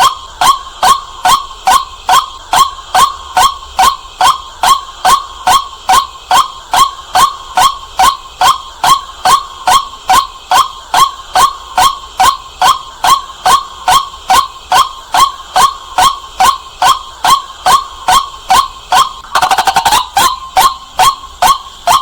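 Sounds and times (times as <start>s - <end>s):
waterhen kwak calls: 19.2s - 22.0s.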